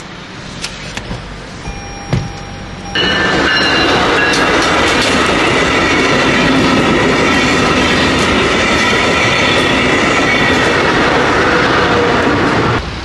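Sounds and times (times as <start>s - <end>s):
train wheels rumbling on rails: 0.0s - 13.0s
train wheels clacking: 2.0s - 11.5s.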